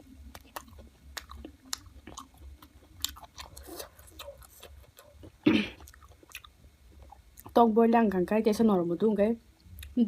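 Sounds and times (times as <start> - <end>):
mouth chewing food: 0.0 - 7.6.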